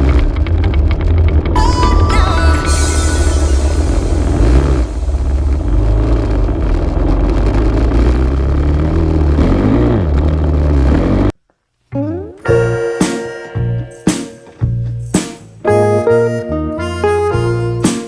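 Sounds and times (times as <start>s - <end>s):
music: 1.6s - 5.6s, 12.0s - 18.0s.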